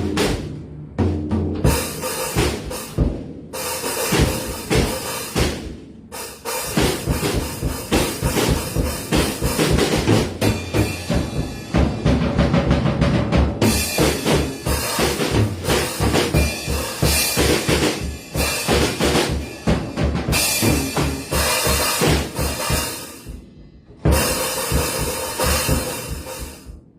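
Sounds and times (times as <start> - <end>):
snare drum hits: 0.0 - 0.5, 3.7 - 5.8, 6.6 - 10.9
bass drum strokes: 0.0 - 26.9
crashing cymbals: 1.7 - 12.0.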